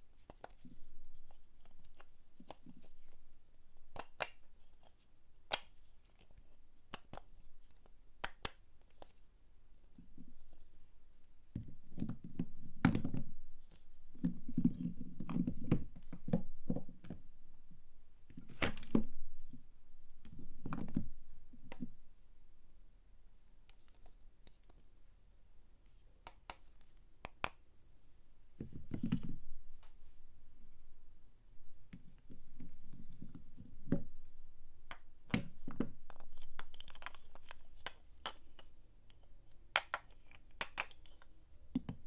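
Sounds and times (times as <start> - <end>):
soap bars handled: 34.9 - 42.0.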